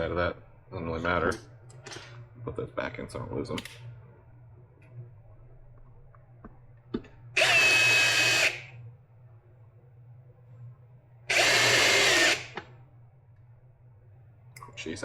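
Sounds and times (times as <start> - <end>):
power drill spinning: 7.4 - 8.8, 11.3 - 12.6.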